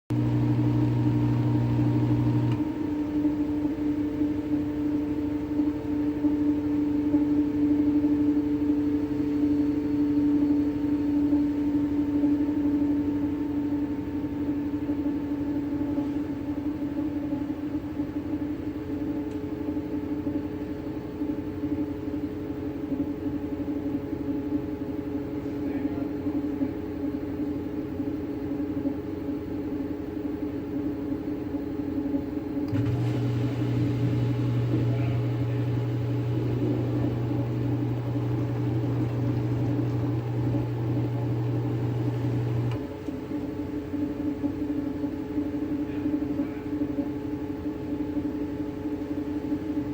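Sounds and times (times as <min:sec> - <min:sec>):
washing machine humming: 0:00.0 - 0:49.9.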